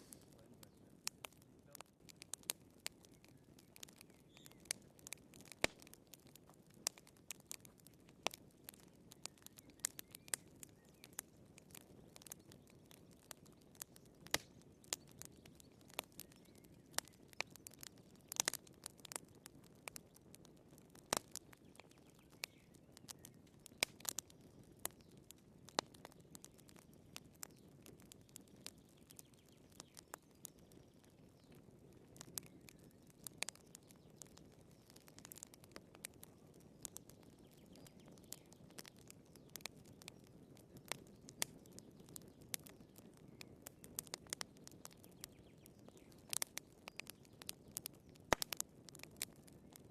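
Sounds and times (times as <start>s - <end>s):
soft rush of flame: 0.0s - 2.2s
fire crackling and popping: 0.0s - 49.9s.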